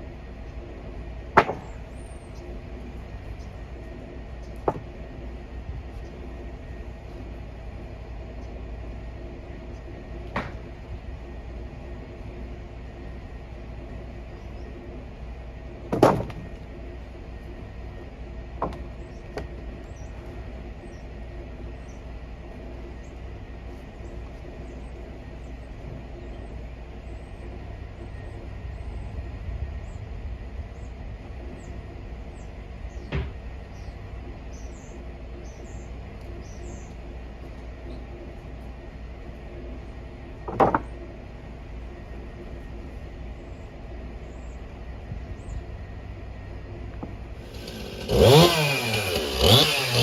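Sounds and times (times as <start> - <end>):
steady low hum: 0.0 - 50.0
sharp knocks: 1.4 - 2.0.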